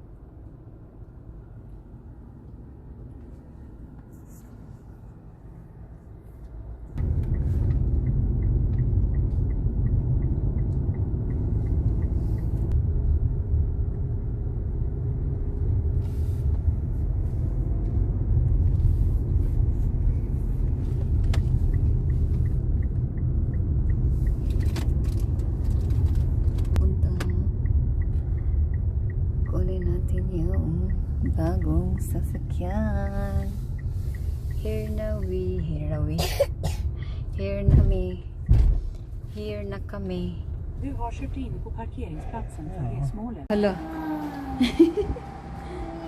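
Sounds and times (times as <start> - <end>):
road and engine rumble in car: 0.0 - 46.0
turn indicator ticking: 7.0 - 13.0, 17.7 - 36.2.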